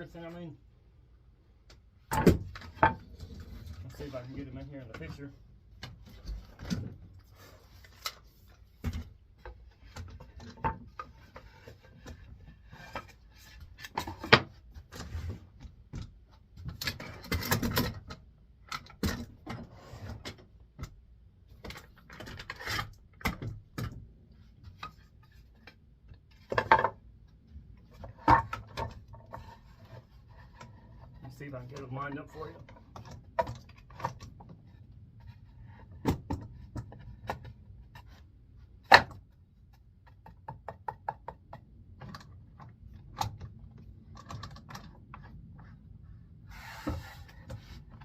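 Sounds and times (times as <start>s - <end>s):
wood and hardware knocks: 40.0s - 42.2s.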